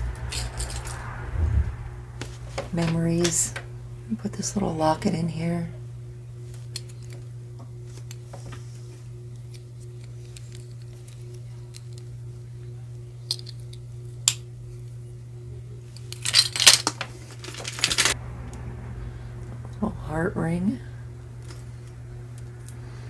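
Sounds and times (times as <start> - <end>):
steady low hum: 0.0 - 23.0
jewelry clinking and rattling: 0.2 - 1.0, 16.2 - 18.2.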